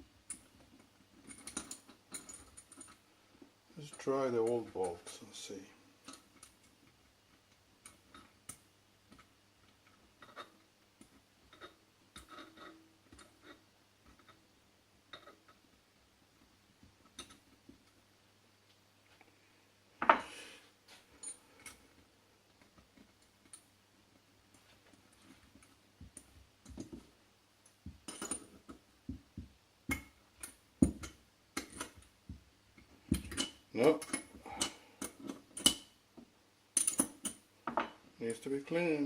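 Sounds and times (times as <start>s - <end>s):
metal bolts clicking and clinking: 0.3s - 3.0s, 28.0s - 28.8s, 33.1s - 35.9s, 36.8s - 37.9s.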